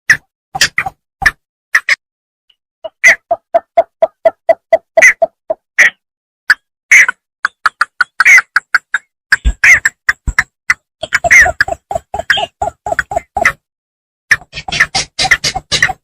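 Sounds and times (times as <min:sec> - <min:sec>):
bittern calling: 0:11.0 - 0:13.6.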